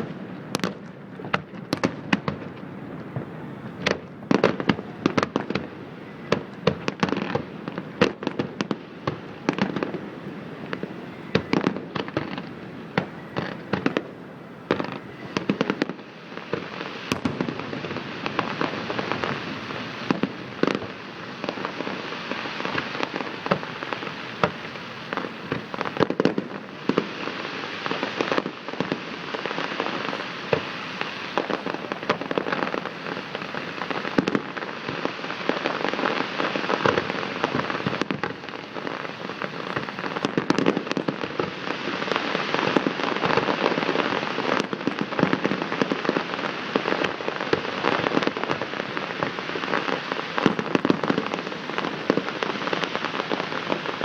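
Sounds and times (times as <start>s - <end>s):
fireworks bangs and crackle: 0.0s - 54.0s.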